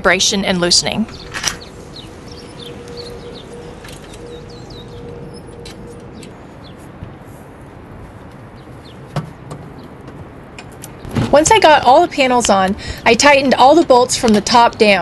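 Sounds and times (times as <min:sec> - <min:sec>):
outdoor background noise: 0:00.0 - 0:15.0
small birds chirping: 0:00.7 - 0:07.0, 0:08.0 - 0:10.1.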